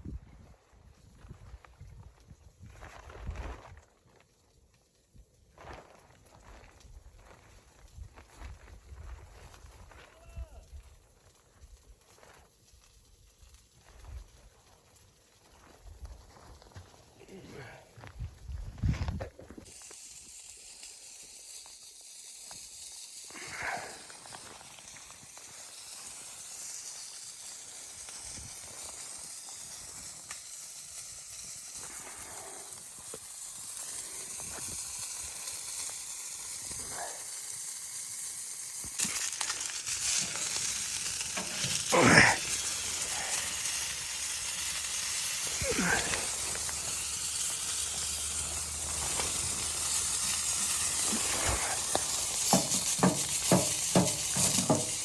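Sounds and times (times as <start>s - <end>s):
food sizzling in a pan: 19.5s - 55.0s
scraping stirring strokes: 39.0s - 55.0s.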